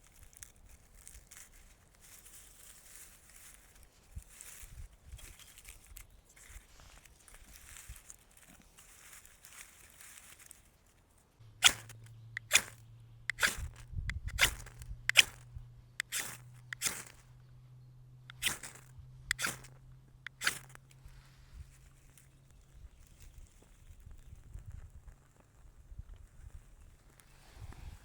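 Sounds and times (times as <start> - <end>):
low steady hum: 6.1 - 23.0
hand tool striking wood: 11.6 - 15.4, 16.0 - 17.2.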